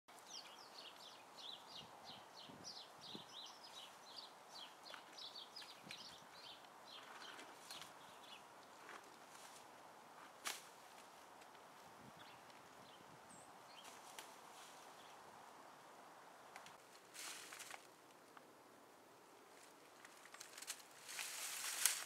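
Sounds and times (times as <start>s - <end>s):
songbird high chirps: 0.1s - 8.8s, 12.1s - 14.2s.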